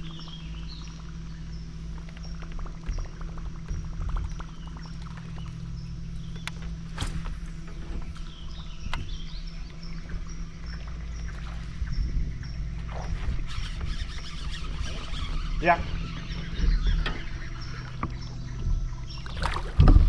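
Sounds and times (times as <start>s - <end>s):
water and hull rumble: 0.0s - 20.0s
sharp knocks on kayak: 19.2s - 20.0s.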